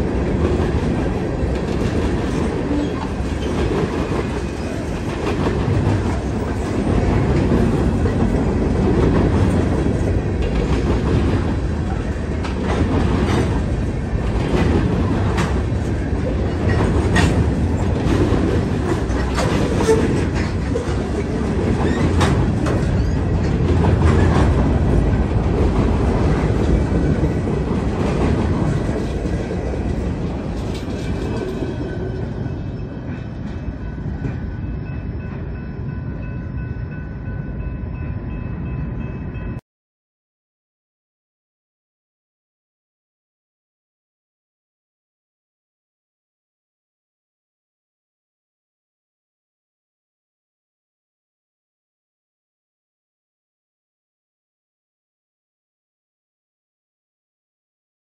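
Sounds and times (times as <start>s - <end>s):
steel wheels rumbling on rail: 0.0s - 39.6s.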